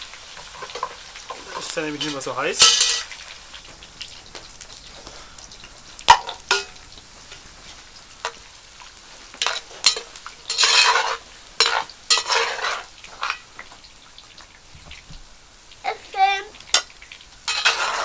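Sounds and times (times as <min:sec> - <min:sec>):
food sizzling in hot oil: 0:00.0 - 0:18.0
utensil clinking against pot: 0:06.1 - 0:07.4, 0:09.4 - 0:13.4, 0:16.7 - 0:18.0
utensil scraping a pot: 0:09.2 - 0:13.8, 0:16.6 - 0:18.0.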